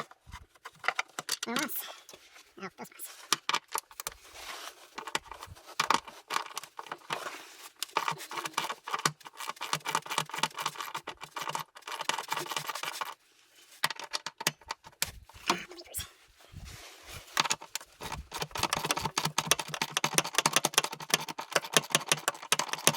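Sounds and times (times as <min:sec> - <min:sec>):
clicks and scrapes of tools: 0:00.0 - 0:02.2.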